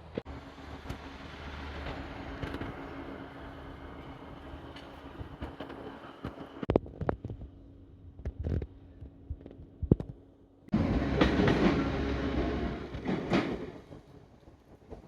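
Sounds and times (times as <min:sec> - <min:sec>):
train clacking on rails: 0:00.0 - 0:06.7, 0:10.7 - 0:15.0
train rushing noise: 0:00.0 - 0:06.7, 0:10.7 - 0:15.0.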